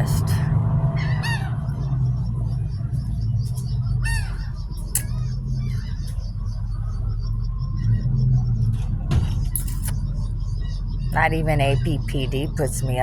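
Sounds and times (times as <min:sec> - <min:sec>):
seagull squawks: 0:00.0 - 0:02.1, 0:03.7 - 0:07.0
seagulls calling: 0:00.0 - 0:13.0
steady low rumble: 0:00.0 - 0:13.0.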